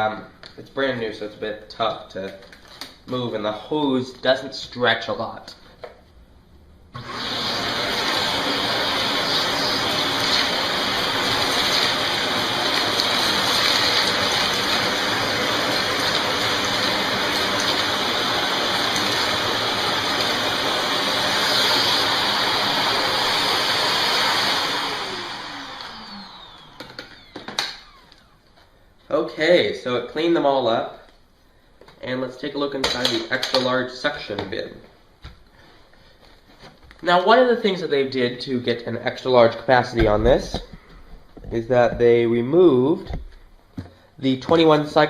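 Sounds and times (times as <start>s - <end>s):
vacuum motor whine spinning down: 7.0s - 28.7s
vacuum cleaner running: 7.0s - 28.8s.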